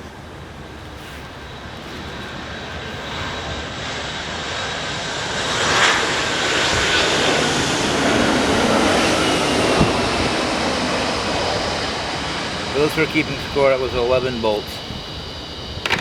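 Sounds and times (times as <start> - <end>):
aircraft engine flying over: 0.0 - 16.0
faint falling whine: 5.8 - 16.0.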